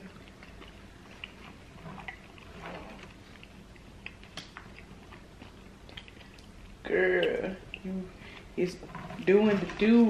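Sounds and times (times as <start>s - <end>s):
mouth clicks and lip smacks: 0.0s - 8.0s
faint chewing: 0.0s - 9.9s
soft humming: 0.0s - 10.0s.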